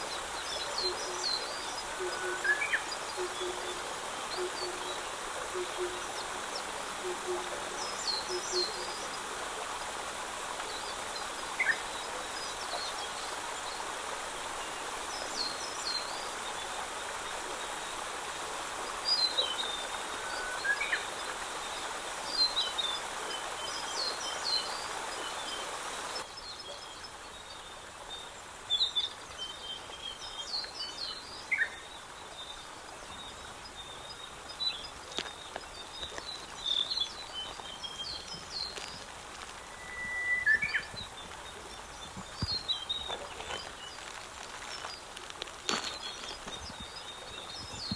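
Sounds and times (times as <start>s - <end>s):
small birds chirping: 32.5s - 47.9s.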